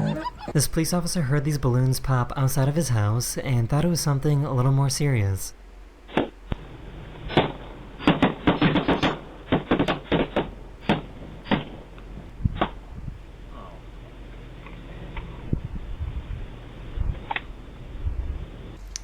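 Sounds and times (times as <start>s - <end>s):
balloons popping: 6.1s - 12.8s.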